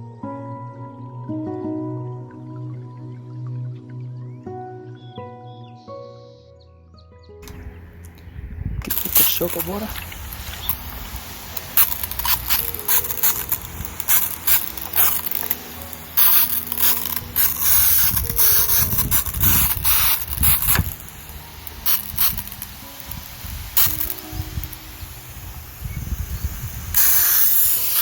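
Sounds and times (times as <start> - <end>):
hissing water spray: 7.4 - 28.0
sprayer mechanical clicks: 7.4 - 28.0.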